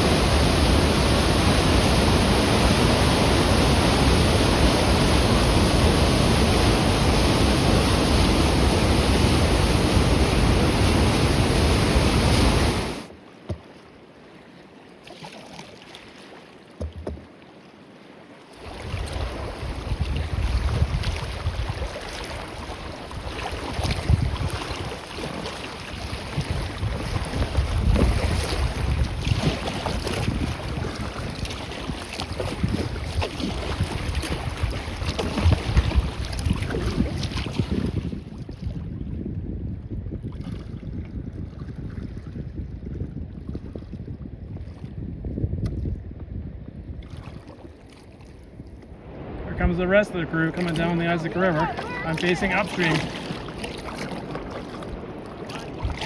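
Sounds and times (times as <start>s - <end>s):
gusty wind on microphone: 0.0s - 13.1s, 18.6s - 56.0s
waterfall rushing: 0.0s - 13.1s, 49.0s - 53.9s
river water noise: 0.0s - 38.9s, 46.9s - 56.0s.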